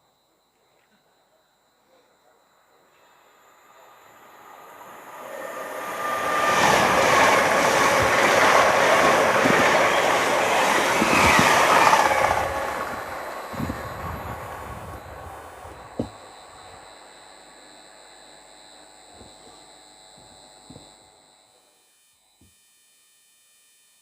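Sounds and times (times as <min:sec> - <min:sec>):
train passing: 0:02.7 - 0:21.2.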